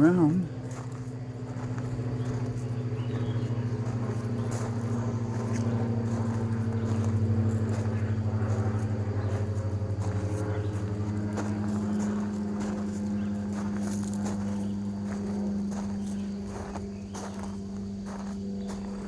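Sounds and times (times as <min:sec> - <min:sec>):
motor humming: 0:00.0 - 0:19.0.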